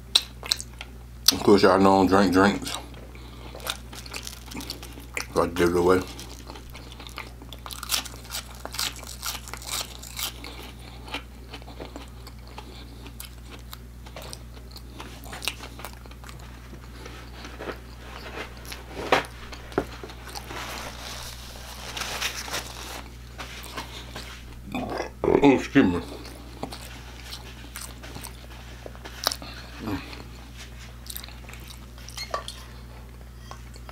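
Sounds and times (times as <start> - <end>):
chewing and crunching fried potatoes: 0.0 - 25.2, 25.9 - 33.9
paper napkin rustling: 16.4 - 24.6.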